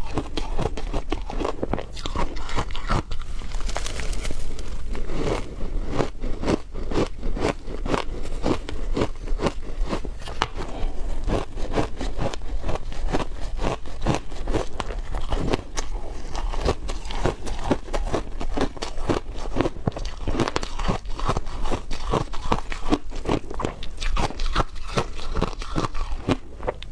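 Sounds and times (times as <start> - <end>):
crunching of frozen ice: 0.0 - 26.9.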